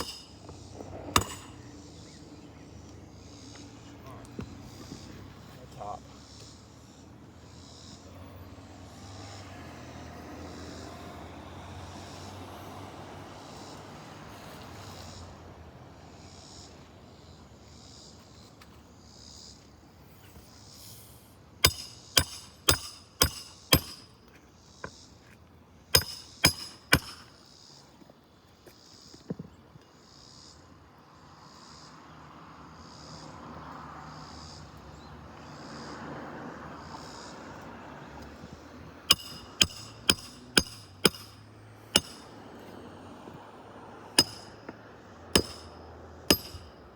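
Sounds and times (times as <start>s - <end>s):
hammer striking roofing nails: 1.1s - 1.5s, 21.6s - 24.2s, 26.0s - 27.3s, 39.1s - 42.3s, 44.2s - 44.6s, 45.4s - 46.8s.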